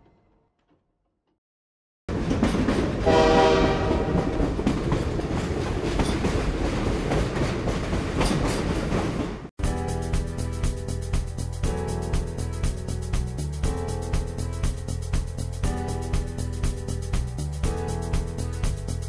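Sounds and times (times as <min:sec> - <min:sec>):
train rumbling with wheels clacking: 0:02.1 - 0:19.0
train horn blast: 0:03.0 - 0:04.3.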